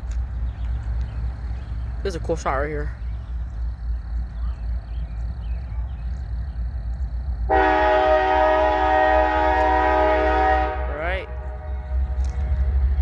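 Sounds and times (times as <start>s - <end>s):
locomotive air horn: 7.5s - 13.0s
low rumble: 10.6s - 13.0s.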